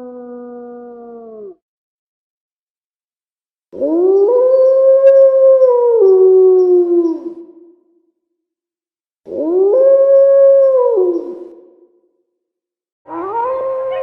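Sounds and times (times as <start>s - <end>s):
wolf-like howl: 0.0s - 1.6s, 3.8s - 7.4s, 9.3s - 11.6s, 13.1s - 14.0s.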